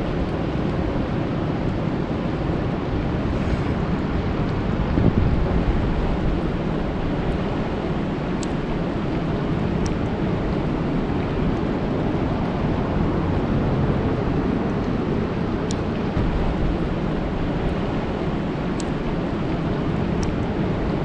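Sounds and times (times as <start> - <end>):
raindrop ticks: 8.4 - 10.2, 15.6 - 21.0.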